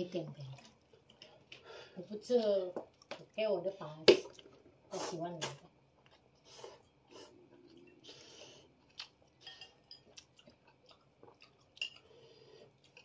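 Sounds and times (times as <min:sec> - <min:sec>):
person chewing food: 0:00.4 - 0:03.3, 0:05.9 - 0:13.0.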